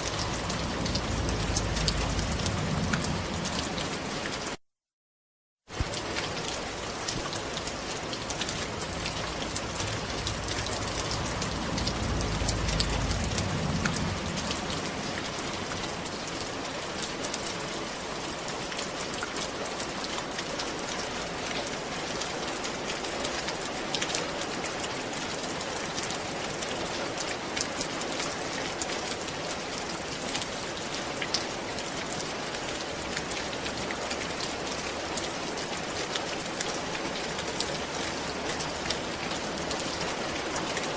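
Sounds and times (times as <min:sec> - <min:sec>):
low rumble: 0:00.0 - 0:04.5, 0:07.5 - 0:17.1
rain falling on a roof: 0:00.0 - 0:04.6, 0:05.6 - 0:40.9.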